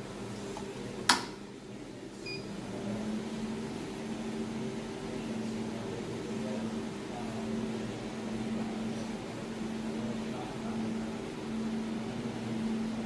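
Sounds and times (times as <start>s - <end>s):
short faint beep: 2.2s - 2.5s.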